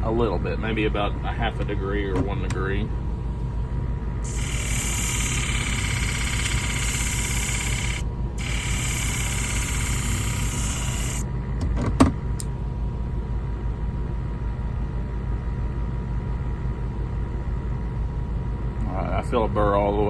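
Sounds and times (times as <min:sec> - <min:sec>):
blade grinding hiss: 0:04.2 - 0:11.2
sharpening machine motor running: 0:04.2 - 0:11.2.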